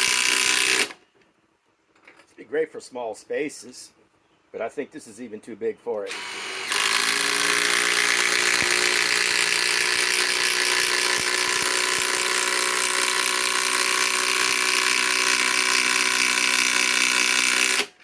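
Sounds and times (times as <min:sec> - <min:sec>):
impact driver hammering: 0:06.1 - 0:18.0.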